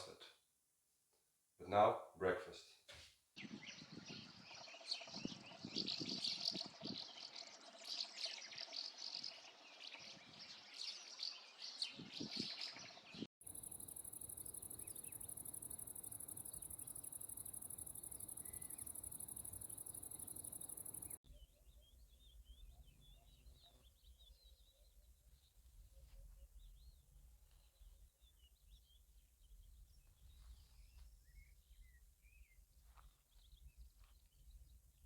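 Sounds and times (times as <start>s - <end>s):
small birds chirping: 3.4s - 35.0s
insect trill: 13.4s - 21.2s.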